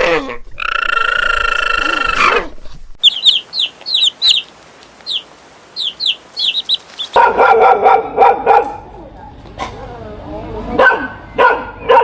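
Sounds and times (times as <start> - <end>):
bird chirping: 3.0 - 7.6.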